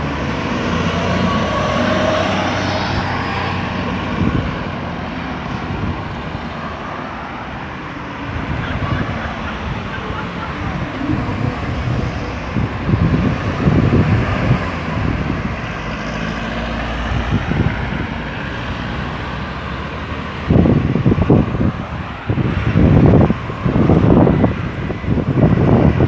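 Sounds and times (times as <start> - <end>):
low vehicle rumbles: 0.0 - 26.0
road traffic: 0.0 - 26.0.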